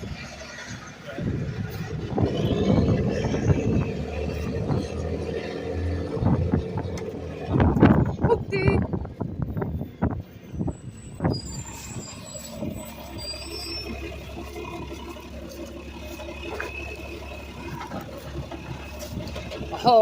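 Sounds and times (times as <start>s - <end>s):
garbage truck running: 0.0s - 20.0s.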